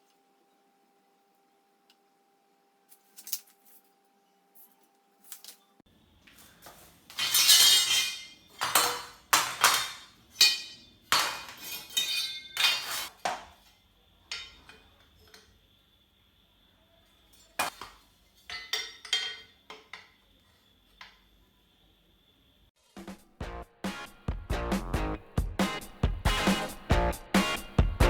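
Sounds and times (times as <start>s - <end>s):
metal tools clinking: 7.1s - 13.1s.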